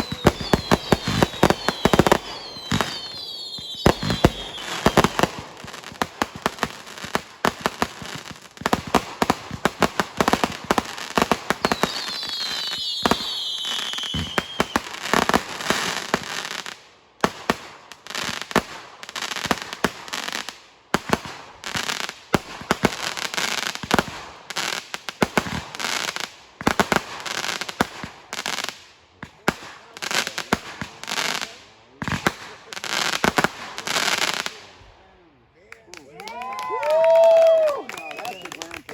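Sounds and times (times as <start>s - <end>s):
firework whistles falling in pitch: 0.0s - 5.1s, 11.6s - 14.8s
fireworks bangs and crackles: 0.0s - 34.8s, 36.7s - 38.9s.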